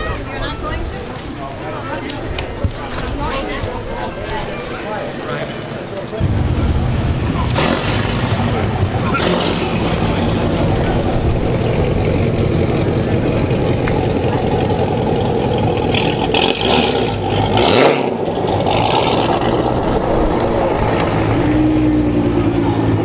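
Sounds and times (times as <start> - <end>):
rush of noise: 6.2 - 17.2
car engines running loudly: 6.2 - 23.0.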